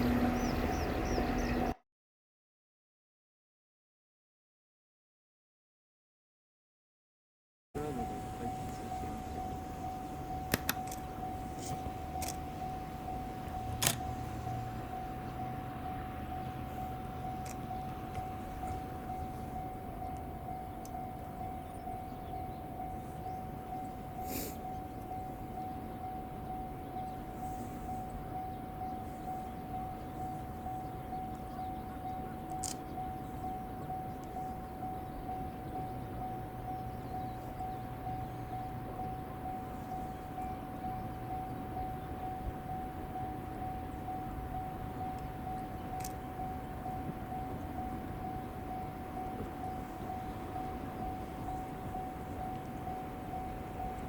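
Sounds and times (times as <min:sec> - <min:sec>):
level crossing alarm ringing: 0:07.8 - 0:54.0.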